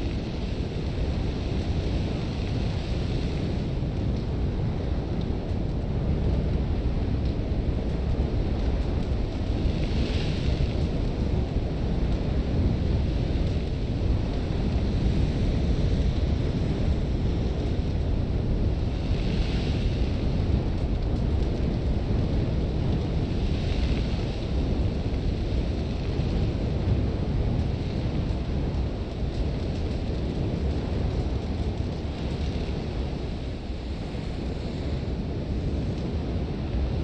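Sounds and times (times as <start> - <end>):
gusting wind rumble: 0.0 - 37.0.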